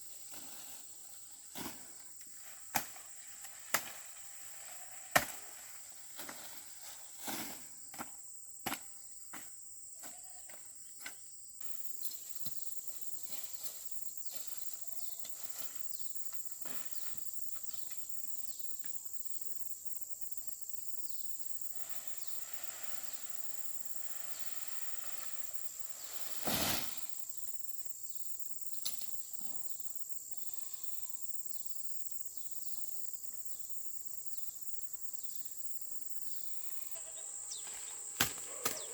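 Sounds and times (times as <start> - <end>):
high insect drone: 0.0 - 38.9
sharp snaps and knocks: 2.7 - 3.0, 38.2 - 38.8
brief crash: 26.4 - 27.1.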